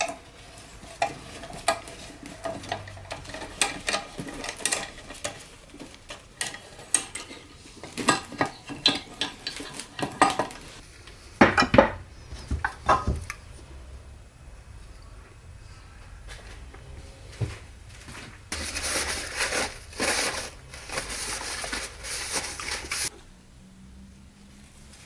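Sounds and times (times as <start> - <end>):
metal tools clinking and knocking: 0.0 - 10.6.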